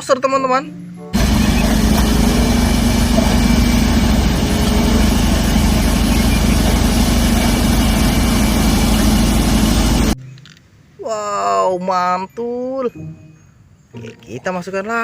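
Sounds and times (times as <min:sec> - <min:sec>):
bulldozer engine running: 0:01.1 - 0:10.2.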